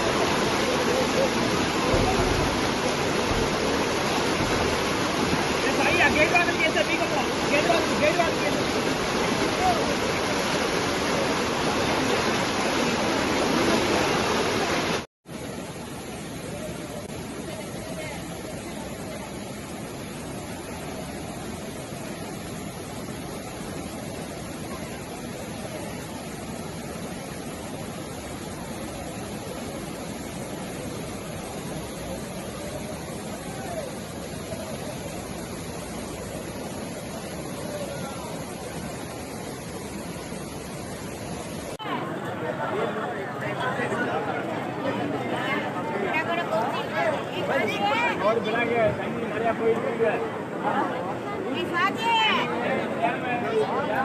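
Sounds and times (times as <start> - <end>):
faint voices: 0.0 - 54.0
floodwater rushing: 0.0 - 54.0.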